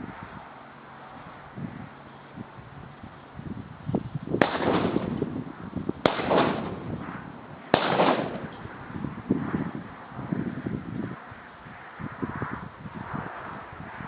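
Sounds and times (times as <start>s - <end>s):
shotgun shots with echo: 4.4s - 5.3s, 6.0s - 8.6s.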